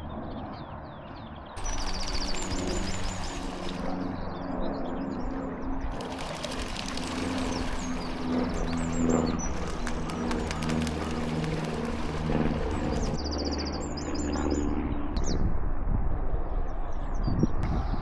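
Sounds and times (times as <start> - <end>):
songbirds chirping and trilling: 0.0 - 14.8
steady low rumble: 1.6 - 13.3.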